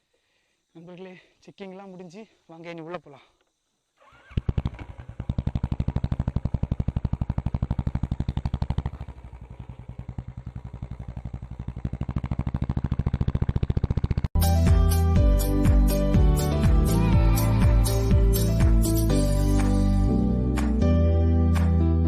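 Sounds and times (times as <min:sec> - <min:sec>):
motorcycle engine thumping: 0:04.2 - 0:14.4
music: 0:14.4 - 0:22.0.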